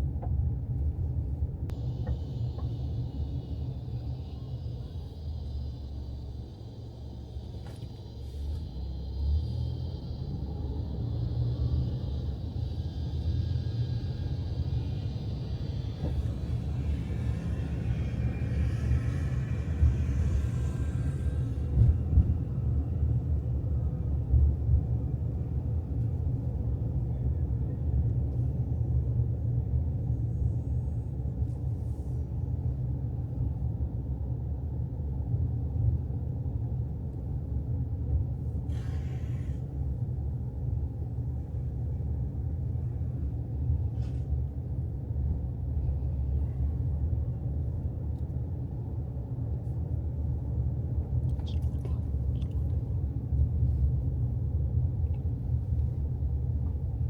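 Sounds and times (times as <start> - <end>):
car interior rumble: 0.0 - 57.0
brief hisses: 38.7 - 39.7.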